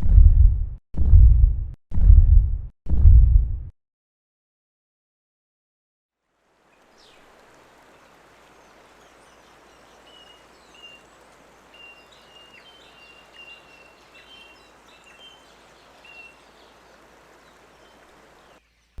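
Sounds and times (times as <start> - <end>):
steady rushing hiss: 6.4 - 18.6
small birds chirping: 6.6 - 19.0.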